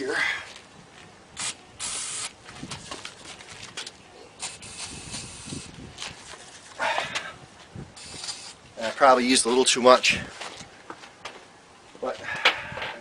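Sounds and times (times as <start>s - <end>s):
aerosol can spraying: 4.4s - 5.7s, 8.0s - 8.6s.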